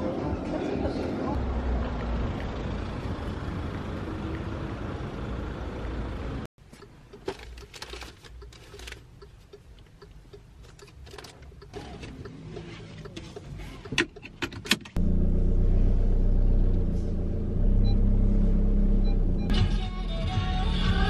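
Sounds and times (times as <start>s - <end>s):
traffic rumble: 0.0s - 19.5s
seat belt clicks and scrapes: 6.8s - 15.0s.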